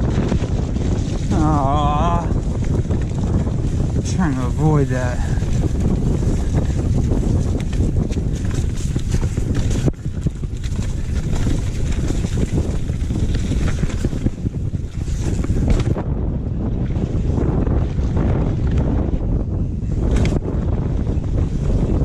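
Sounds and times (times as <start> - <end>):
wind rushing over microphone: 0.0 - 22.0
bike rattling clicks and knocks: 5.3 - 16.0.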